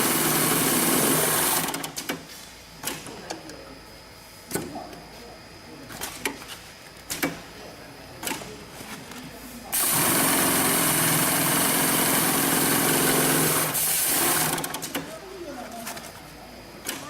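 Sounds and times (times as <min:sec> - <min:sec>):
industrial sewing machine running: 0:00.0 - 0:01.9, 0:09.7 - 0:15.0.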